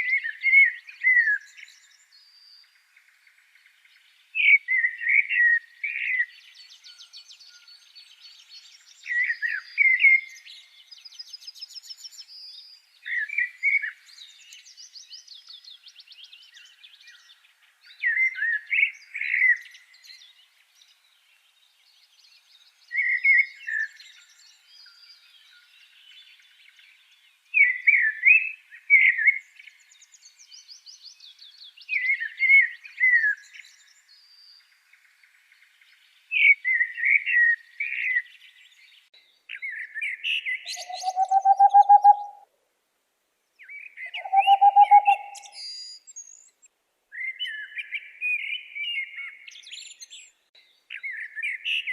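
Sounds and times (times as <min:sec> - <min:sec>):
bird repeating short phrase: 0:40.7 - 0:42.4, 0:44.2 - 0:45.6
high-pitched bird trills: 0:40.7 - 0:42.4, 0:44.2 - 0:45.6.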